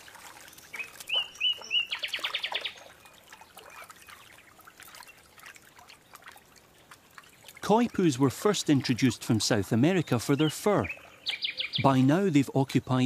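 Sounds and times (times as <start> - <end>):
small bird calling with trill: 0.6 - 2.9, 10.2 - 12.0.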